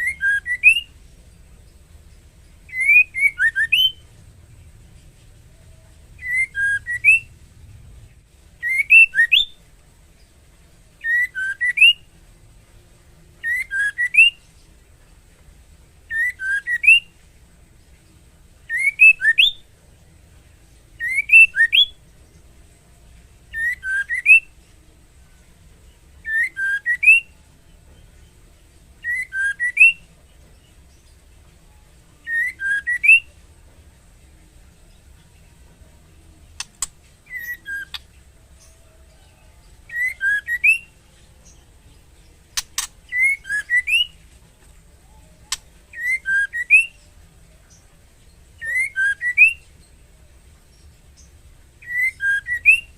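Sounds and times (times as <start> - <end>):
bird whistled call: 0.0 - 0.9, 2.7 - 4.0, 6.2 - 7.3, 8.6 - 9.6, 11.0 - 12.0, 13.4 - 14.4, 16.1 - 17.1, 18.7 - 19.6, 26.2 - 27.3, 29.0 - 30.0, 32.2 - 33.3, 36.8 - 38.1, 39.2 - 41.0, 42.6 - 44.2, 45.2 - 47.0, 48.6 - 49.6, 51.8 - 52.9.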